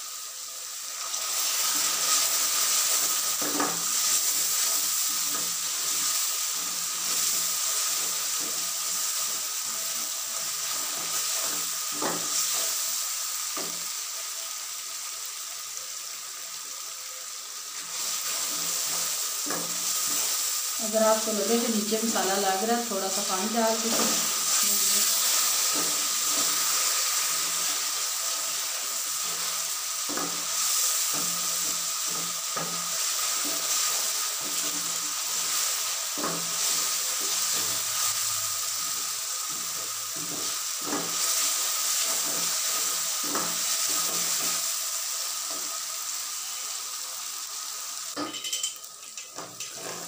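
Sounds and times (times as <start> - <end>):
masala sizzling in oil: 0.0 - 50.0
spatula scraping and knocking pot: 49.4 - 50.0.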